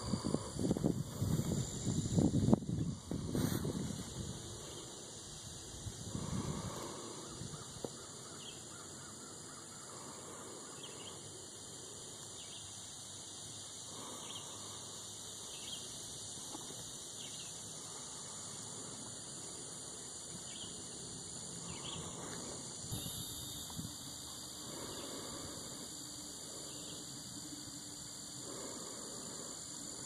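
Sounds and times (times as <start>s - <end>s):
steady hiss: 0.0s - 30.0s
distant birds chirping: 6.1s - 13.0s, 13.6s - 30.0s.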